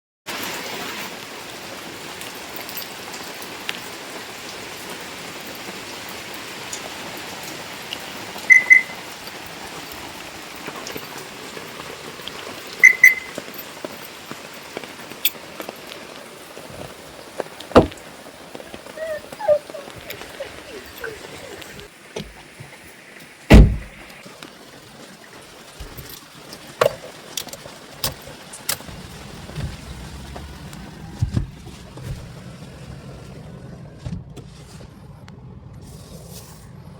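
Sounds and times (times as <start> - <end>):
steady rain falling: 0.3 - 36.9
high double beeps: 8.5 - 9.0, 12.8 - 13.4
heavy thump: 17.8 - 18.0, 23.5 - 24.0.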